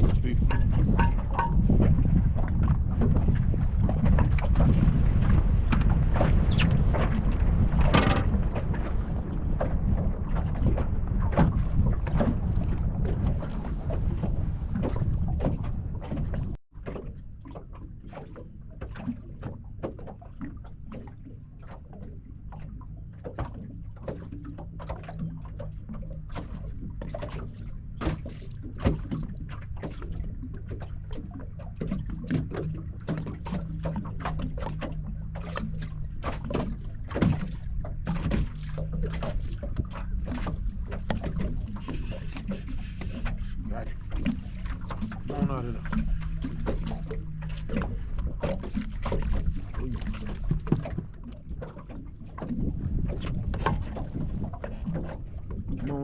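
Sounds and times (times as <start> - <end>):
low steady hum: 0.0 - 16.6, 20.7 - 56.0
wind buffeting microphone: 0.0 - 16.6, 32.0 - 56.0
small waves slapping a hull: 0.0 - 56.0.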